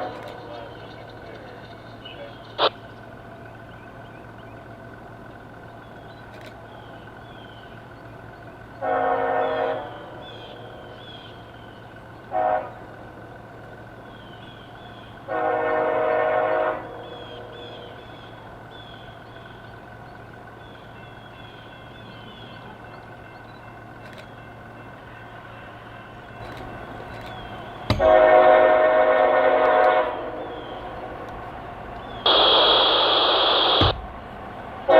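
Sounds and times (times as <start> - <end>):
train rumble: 0.0 - 34.9
locomotive air horn blasts: 8.8 - 10.1, 12.3 - 12.9, 15.3 - 17.0, 28.0 - 30.4, 32.3 - 34.0.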